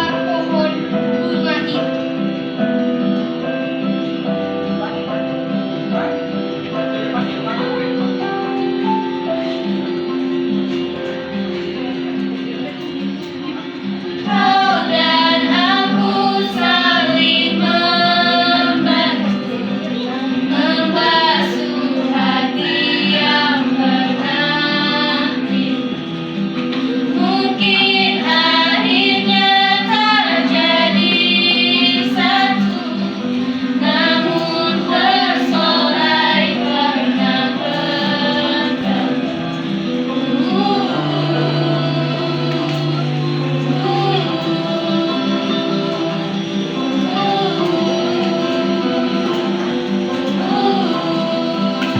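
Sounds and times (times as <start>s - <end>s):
instrumental accompaniment: 0.0s - 51.9s
woman singing: 14.3s - 26.1s, 27.1s - 51.9s.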